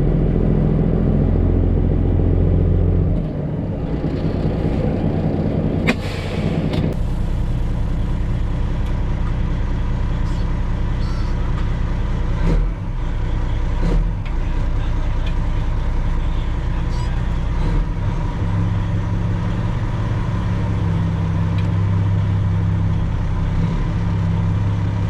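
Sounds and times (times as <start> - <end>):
truck diesel engine running: 0.0 - 25.0
air hiss: 5.9 - 6.8.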